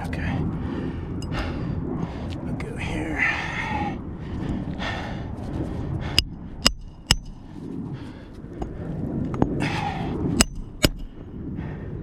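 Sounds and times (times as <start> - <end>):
hammer striking roofing nails: 6.2 - 7.4, 10.4 - 11.1.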